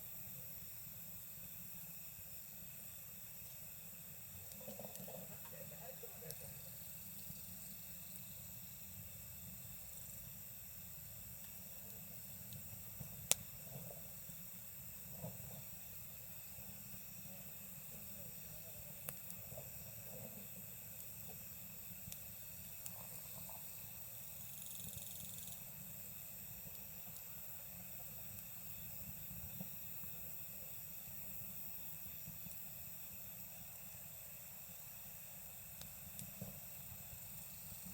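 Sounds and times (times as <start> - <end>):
campfire crackling and popping: 0.0 - 37.9
crickets chirping: 0.0 - 37.9.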